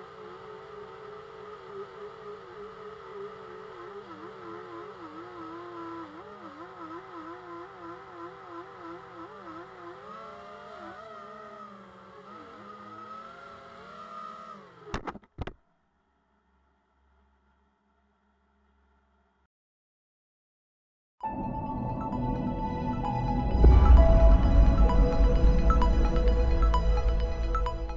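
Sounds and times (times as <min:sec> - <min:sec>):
quadcopter motors whirring: 0:00.0 - 0:19.2.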